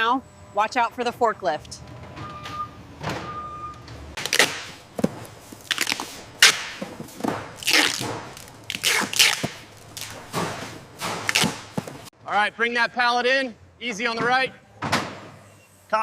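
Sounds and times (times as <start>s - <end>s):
forklift warning beeper: 2.2s - 3.9s.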